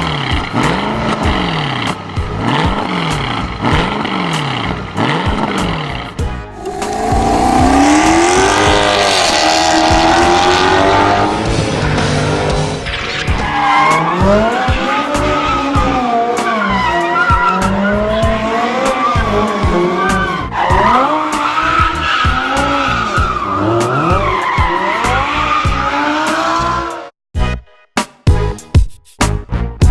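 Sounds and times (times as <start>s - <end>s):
car engine revving: 0.5s - 26.8s
tyres squealing: 13.3s - 26.0s.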